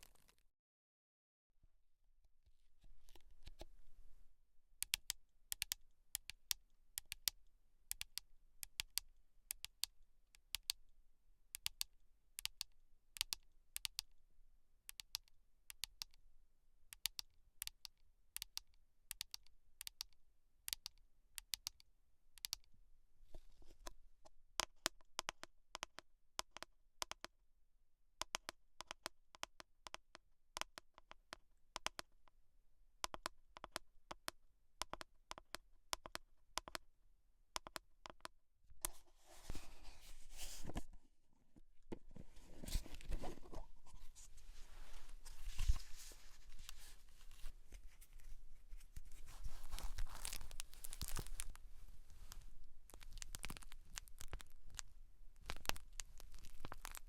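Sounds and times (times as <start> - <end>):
close-miked clicks and taps: 23.8 - 27.4, 28.2 - 32.4, 33.0 - 36.8, 37.5 - 39.0
soft brushing hiss: 43.3 - 51.0.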